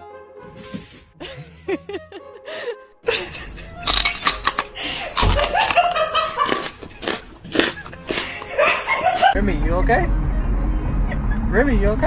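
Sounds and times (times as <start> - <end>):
people laughing: 1.2 - 4.0, 4.8 - 9.4.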